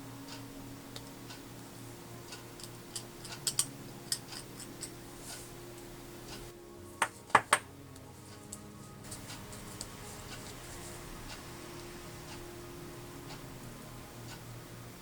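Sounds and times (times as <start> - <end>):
low steady hum: 0.0 - 15.0
plastic parts and tools clicking: 2.6 - 5.0.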